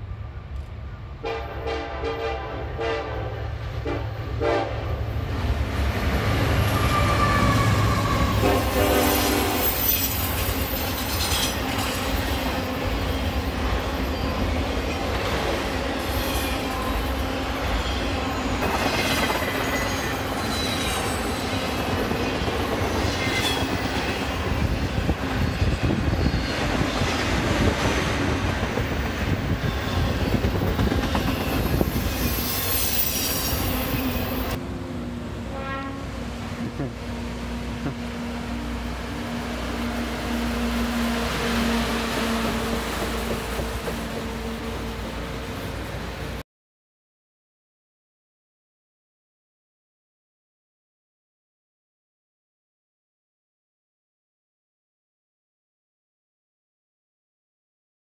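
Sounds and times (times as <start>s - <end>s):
freight train horn blasts: 1.2s - 5.1s, 6.6s - 10.0s, 34.0s - 36.4s
train wheels rumbling and clicking: 21.7s - 32.4s, 42.3s - 44.6s
wheel squeals: 29.6s - 34.6s.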